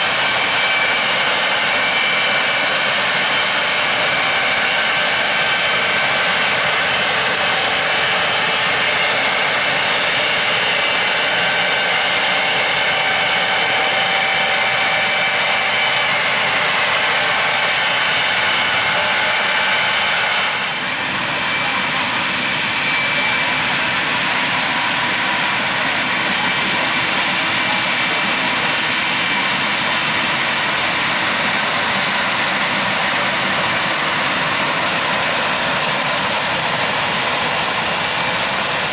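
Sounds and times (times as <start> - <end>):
diesel engine and harvesting machinery: 0.0 - 38.9.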